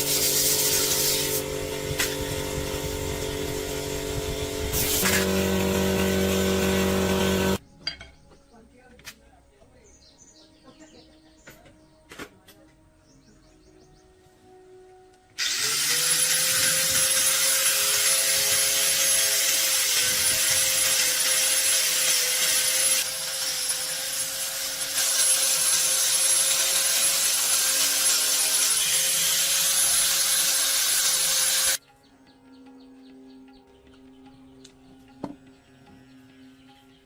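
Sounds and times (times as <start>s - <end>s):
power tool whining and grinding: 0.0s - 7.6s, 15.4s - 31.8s.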